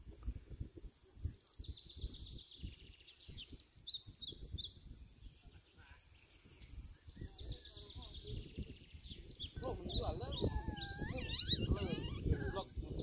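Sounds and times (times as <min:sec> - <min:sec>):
small birds chirping: 0:00.0 - 0:13.0
high bird trill: 0:06.4 - 0:12.8.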